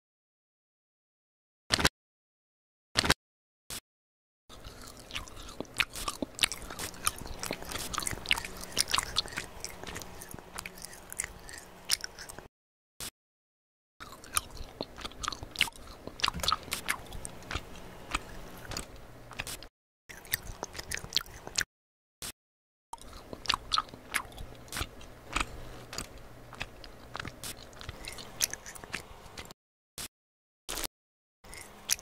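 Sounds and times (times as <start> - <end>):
chewing gummy candy: 4.5 - 12.5, 14.0 - 21.7, 23.0 - 29.6, 30.7 - 32.0.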